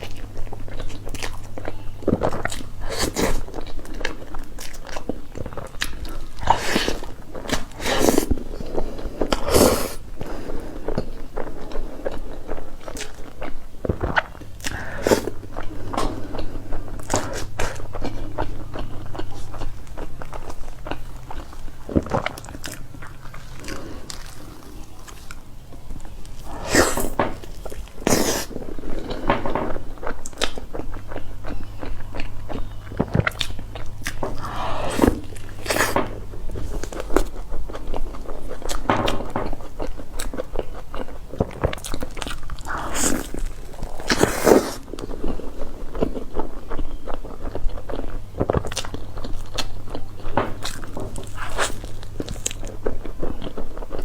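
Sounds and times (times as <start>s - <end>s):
chewing with mouth clicks: 0.0s - 54.0s
crunchy bites: 32.2s - 45.1s, 46.0s - 54.0s.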